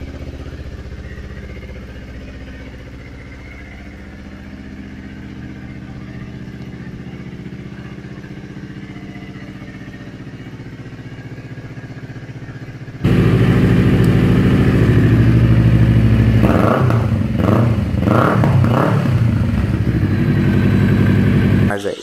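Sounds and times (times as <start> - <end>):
motorcycle engine idling: 0.0 - 21.7.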